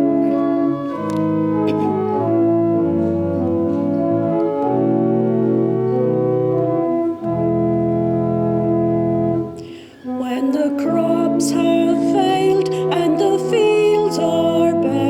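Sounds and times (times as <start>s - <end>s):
organ playing sustained chords: 0.0s - 15.0s.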